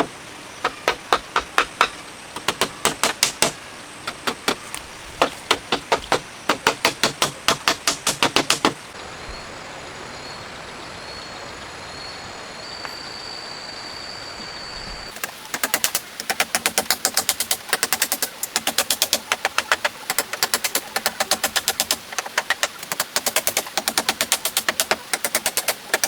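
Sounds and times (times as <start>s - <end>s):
blade chopping wood: 0.0s - 8.8s, 15.2s - 26.0s
forest background hiss: 0.0s - 26.0s
faint high steady tone: 9.0s - 15.1s.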